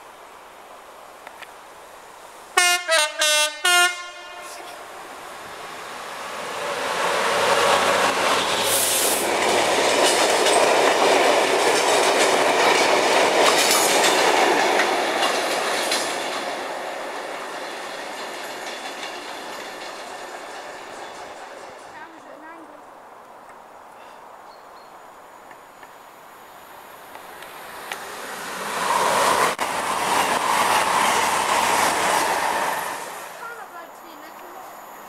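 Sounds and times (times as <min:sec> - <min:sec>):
locomotive horn blasts: 0:02.6 - 0:04.8
wagon wheels clattering over rail joints: 0:07.6 - 0:22.6.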